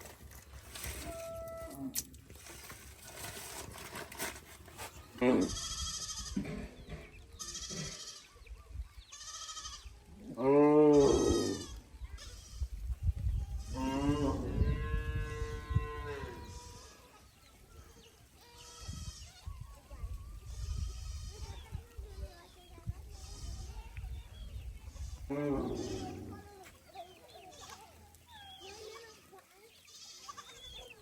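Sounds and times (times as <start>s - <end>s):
small livestock bleating: 5.2s - 6.7s, 7.4s - 8.4s, 9.1s - 12.7s, 13.6s - 17.2s, 18.4s - 19.6s, 25.0s - 26.5s, 27.5s - 28.0s, 28.7s - 30.8s.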